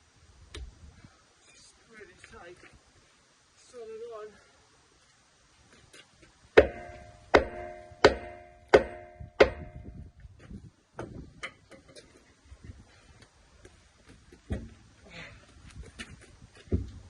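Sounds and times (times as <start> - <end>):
hammer blows on steel: 6.6 - 10.0.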